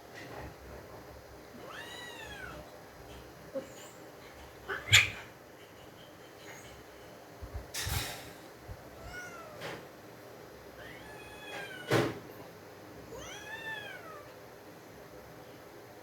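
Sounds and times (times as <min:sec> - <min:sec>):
cat meowing: 0:01.6 - 0:02.7, 0:09.0 - 0:09.7, 0:10.8 - 0:12.1, 0:13.1 - 0:14.4.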